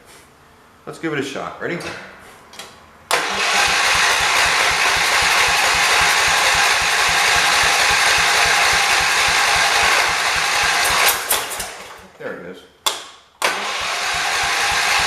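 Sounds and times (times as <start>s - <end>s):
engine cranking by starter: 3.1s - 12.1s, 13.4s - 15.0s.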